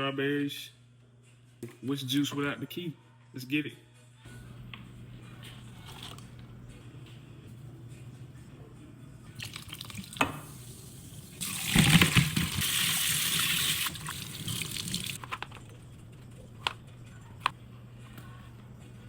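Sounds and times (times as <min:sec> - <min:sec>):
water running: 0:09.4 - 0:15.2.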